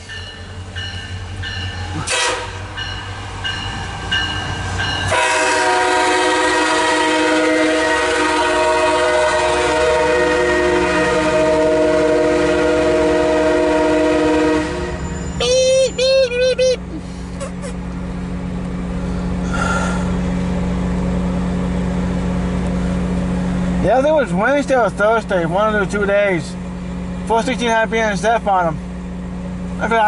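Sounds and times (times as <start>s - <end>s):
train rumbling: 0.0s - 30.0s
locomotive horn blast: 2.0s - 2.8s, 5.0s - 15.5s.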